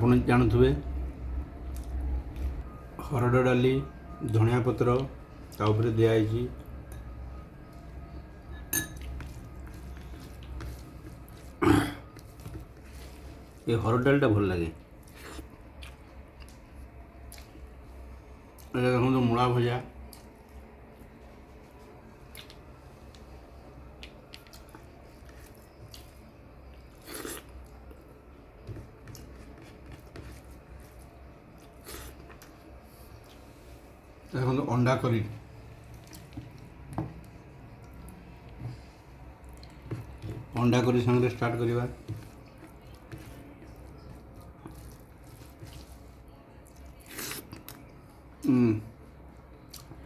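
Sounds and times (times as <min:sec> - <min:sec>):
low steady hum: 0:00.0 - 0:50.0
person chewing food: 0:09.0 - 0:13.5, 0:14.8 - 0:17.8, 0:22.2 - 0:23.3, 0:23.9 - 0:33.6, 0:35.6 - 0:40.6, 0:42.0 - 0:48.5, 0:49.6 - 0:50.0.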